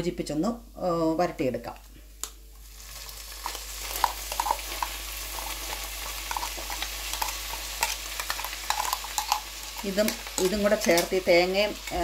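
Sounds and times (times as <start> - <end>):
vegetables sizzling in oil: 2.5 - 12.0.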